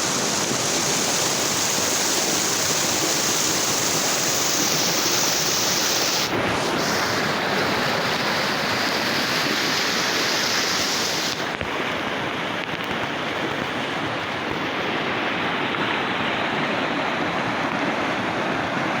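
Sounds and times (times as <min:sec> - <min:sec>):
flowing water rushing: 0:00.0 - 0:19.0.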